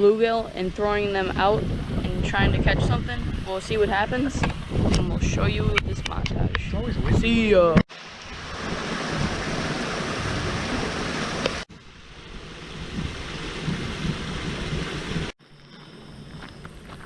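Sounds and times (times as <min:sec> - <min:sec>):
wind rushing on microphone: 0:00.3 - 0:15.3.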